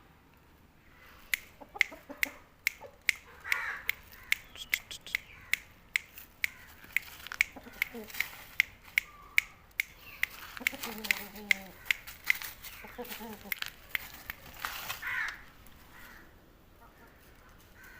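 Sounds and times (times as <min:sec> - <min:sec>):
sharp clicks or taps: 0:01.3 - 0:12.5
rooster clucking: 0:01.4 - 0:17.4.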